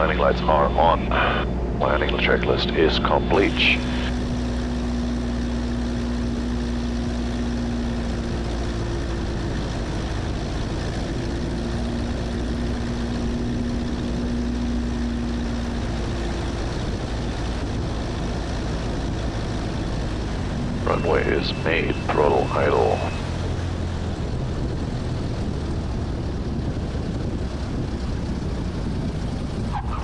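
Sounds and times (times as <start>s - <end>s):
airplane engine and propeller drone: 0.0s - 30.0s
low steady tone: 20.7s - 23.7s.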